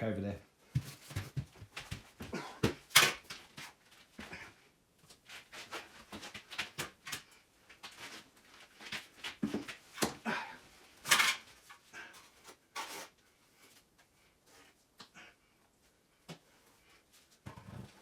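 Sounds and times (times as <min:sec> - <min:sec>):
objects knocking and clattering: 0:08.9 - 0:10.2.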